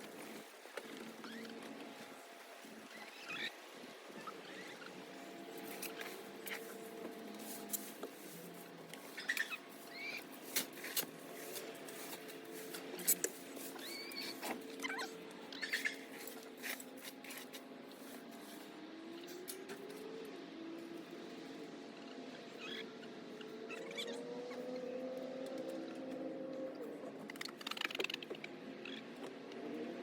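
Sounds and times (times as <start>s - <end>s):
birds scratching and pecking: 4.5s - 18.7s, 27.2s - 29.3s.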